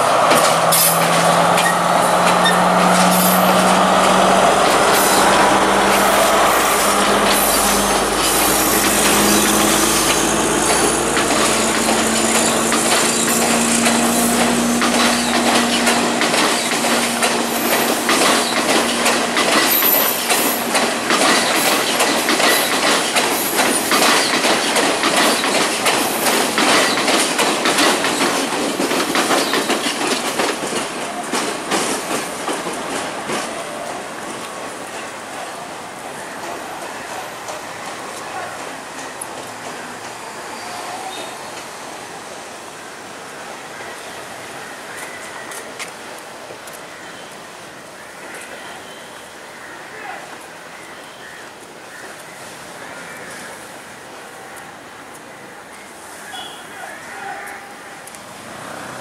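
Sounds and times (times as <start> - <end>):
wheels clacking over rail joints: 0.0 - 40.3
train engine drone: 0.0 - 47.9.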